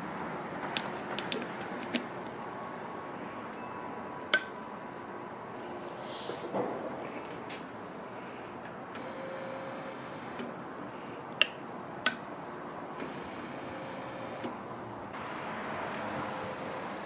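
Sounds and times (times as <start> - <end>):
small electric motor whining: 16.0 - 17.0.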